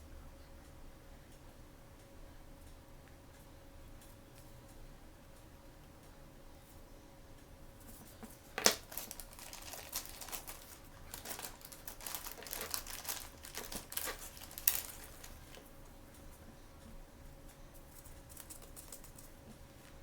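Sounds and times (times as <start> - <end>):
packaging crinkling: 8.2 - 15.7
packaging sharp crackle: 8.6 - 15.6.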